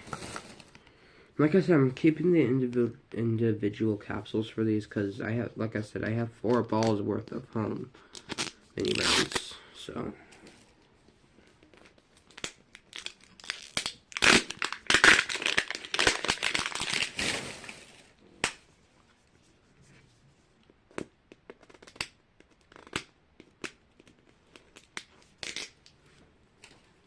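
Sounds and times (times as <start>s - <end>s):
plastic packets tearing and crinkling: 8.1s - 9.5s, 11.7s - 18.1s.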